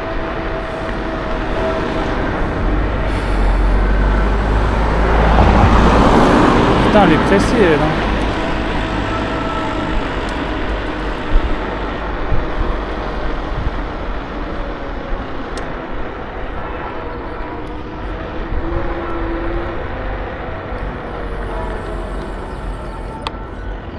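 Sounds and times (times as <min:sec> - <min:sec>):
wind on microphone: 0:00.0 - 0:07.3
faint whine: 0:00.0 - 0:23.9.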